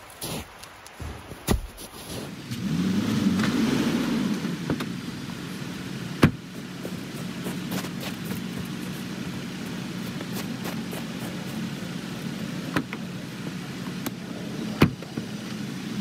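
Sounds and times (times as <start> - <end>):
pickup truck engine idling: 4.3 - 16.0.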